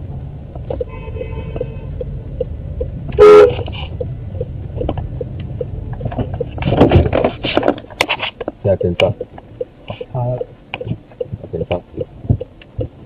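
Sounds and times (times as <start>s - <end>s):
car rumbling in motion: 0.0s - 13.0s
car horn blast: 0.9s - 2.0s, 3.2s - 3.7s
light regular ticking: 1.6s - 3.0s, 3.6s - 6.6s, 8.4s - 13.0s.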